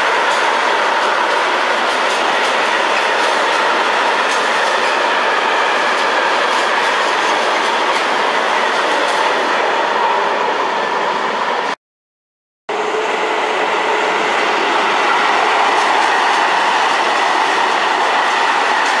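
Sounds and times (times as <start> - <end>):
train wheels clattering on rail: 0.0 - 10.1, 13.9 - 19.0.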